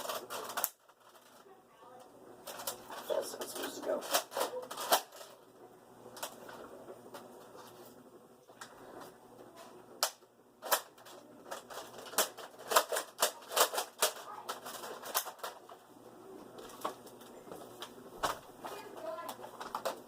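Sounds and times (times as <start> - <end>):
plastic blaster clacks and snaps: 0.0 - 1.0, 4.0 - 5.3, 10.0 - 15.6.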